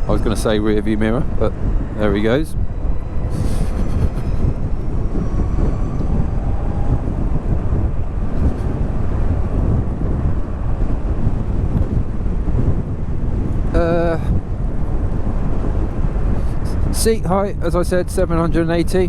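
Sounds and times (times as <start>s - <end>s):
electric motor whine: 0.0s - 12.4s
wind rushing over microphone: 0.0s - 19.0s.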